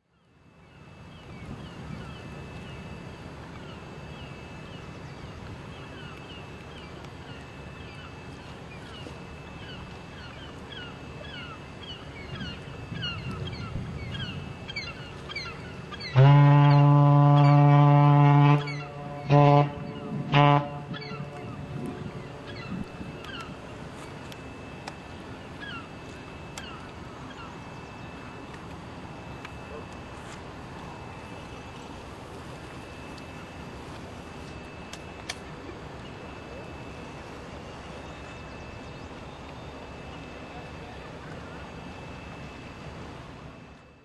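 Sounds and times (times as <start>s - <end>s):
steady low rumble: 0.6s - 44.0s
wind noise: 1.3s - 2.9s, 12.3s - 14.8s, 19.4s - 24.3s
ship's horn blasts: 12.3s - 24.6s.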